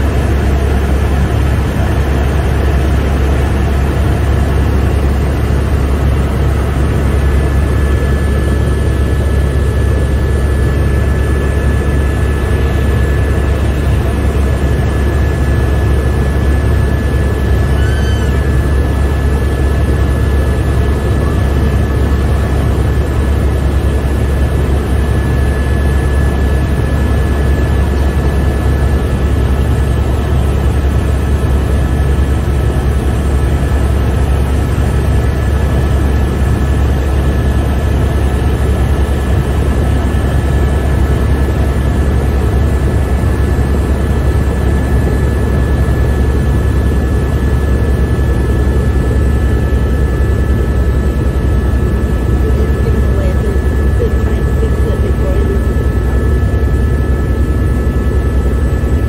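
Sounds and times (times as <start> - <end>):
helicopter rotor drone: 0.0 - 59.0
high whine: 5.0 - 29.4.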